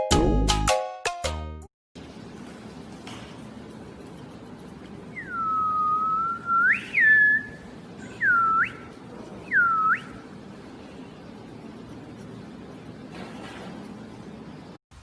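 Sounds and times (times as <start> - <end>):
swooping whistle-like calls: 5.1 - 10.3.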